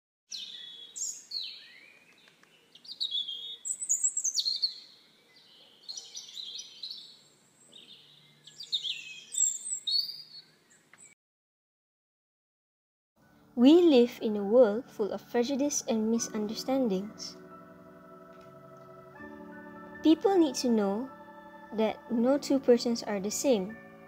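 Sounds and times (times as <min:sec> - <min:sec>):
birds singing: 0:00.3 - 0:11.2.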